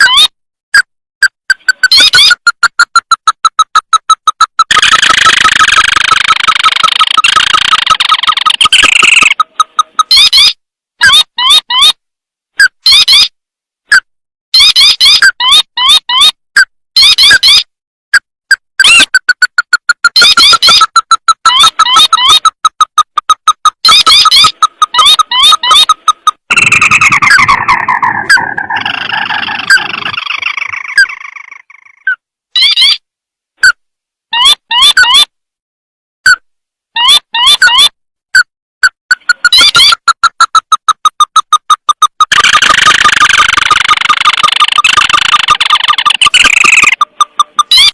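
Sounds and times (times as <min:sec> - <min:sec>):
bird call of short repeated notes: 0:01.2 - 0:12.0, 0:12.6 - 0:17.7, 0:18.8 - 0:33.0, 0:33.6 - 0:35.3, 0:37.0 - 0:47.9
dense trilling bird call: 0:06.6 - 0:09.4, 0:23.8 - 0:33.0
loud upward-sweeping bird notes: 0:24.0 - 0:32.1.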